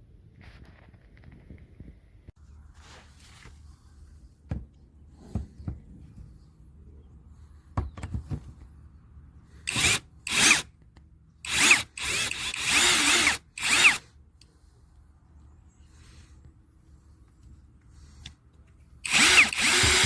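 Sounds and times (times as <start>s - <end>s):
light handling knocks: 7.7s - 8.8s
cordless drill motor whine: 9.7s - 10.6s, 11.5s - 14.0s, 19.0s - 20.0s.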